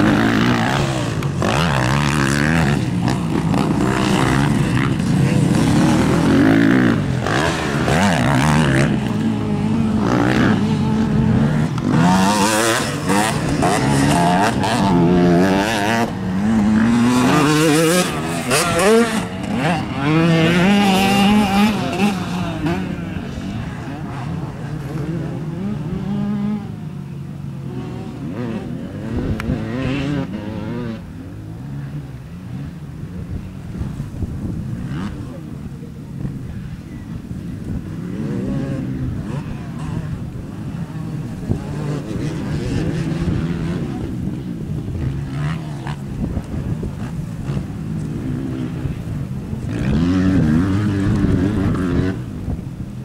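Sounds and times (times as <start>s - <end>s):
motorcycle engines revving: 0.0s - 53.0s.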